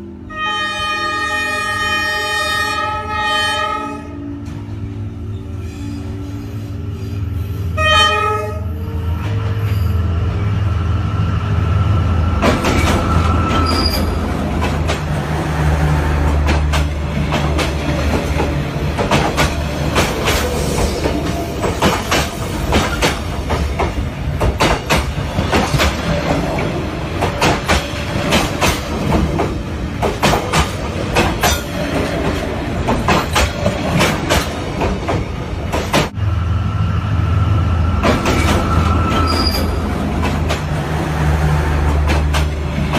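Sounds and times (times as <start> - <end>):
train rumbling on rails: 0.0 - 42.9
high wheel squeal: 12.1 - 14.2, 38.3 - 39.9
wheels clacking over rail joints: 16.2 - 36.1, 38.0 - 41.0, 41.7 - 42.9.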